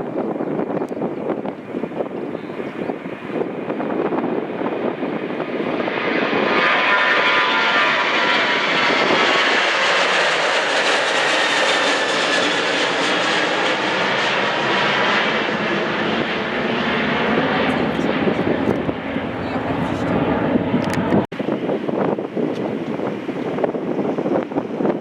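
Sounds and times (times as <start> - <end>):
airliner engines rushing: 0.0 - 25.0
high engine whine: 6.4 - 25.0.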